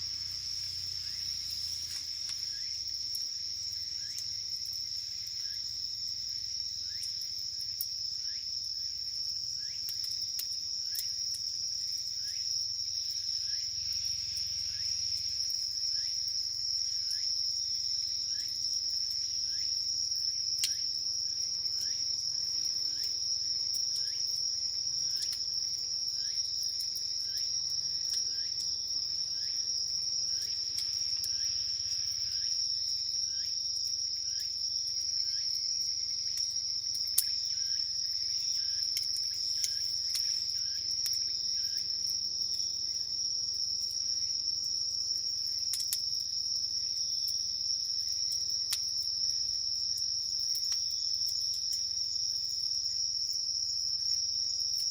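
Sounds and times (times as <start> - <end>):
insect rising chirps: 0.0 - 4.2, 28.2 - 33.6
campfire popping: 0.0 - 52.0
crickets trilling: 0.0 - 54.9.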